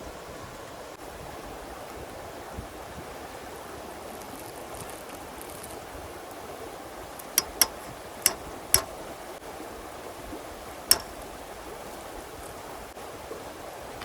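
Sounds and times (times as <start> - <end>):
sharp clicks or knocks: 7.4 - 8.9, 10.9 - 11.2.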